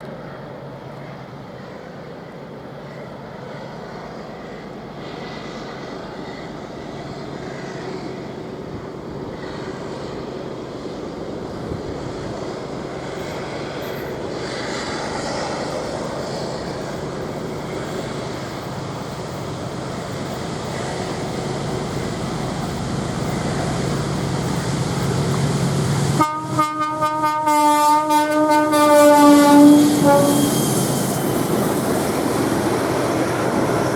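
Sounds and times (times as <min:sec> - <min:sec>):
freight train rumble: 0:00.0 - 0:33.9
locomotive horn blasts: 0:26.1 - 0:30.7.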